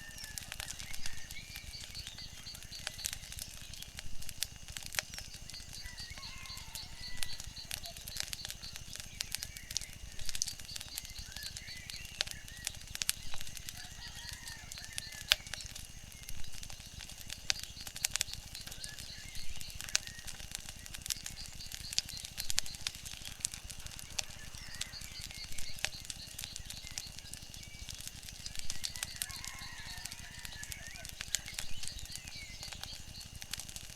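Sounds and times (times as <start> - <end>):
wood fire crackling and popping: 0.0 - 33.9.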